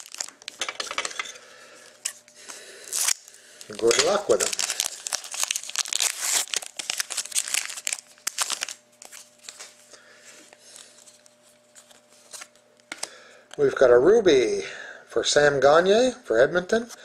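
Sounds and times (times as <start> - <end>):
wrapper tearing and crinkling: 0.0 - 0.9, 2.8 - 9.8, 10.7 - 12.6
cards rustling: 2.1 - 9.8, 10.4 - 12.6.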